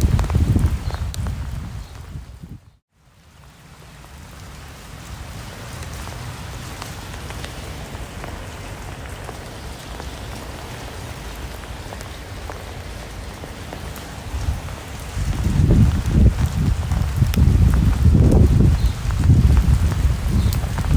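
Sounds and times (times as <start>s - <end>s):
rain pattering on a surface: 0.0s - 20.9s.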